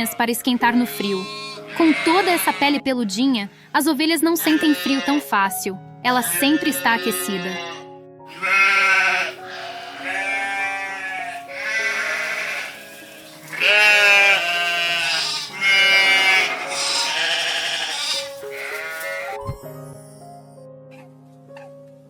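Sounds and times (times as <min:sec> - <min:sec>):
background music: 0:00.0 - 0:22.0
sheep bleating: 0:00.8 - 0:02.8, 0:04.4 - 0:05.3, 0:06.1 - 0:19.4.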